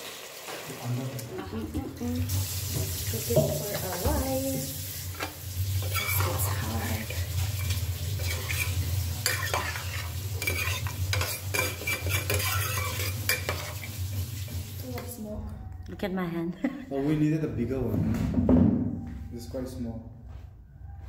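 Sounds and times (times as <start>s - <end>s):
curry sizzling in pot: 0.0s - 15.2s
utensil scraping and clicking on pot: 5.2s - 14.0s.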